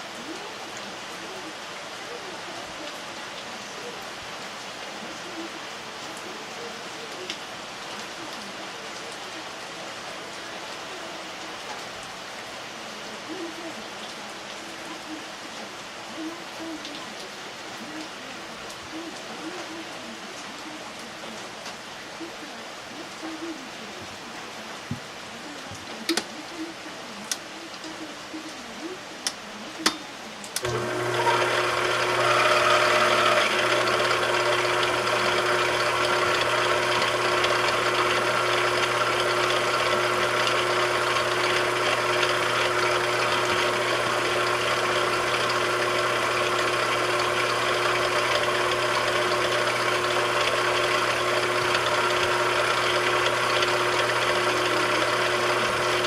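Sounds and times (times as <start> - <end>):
electric motor humming: 30.6 - 56.0.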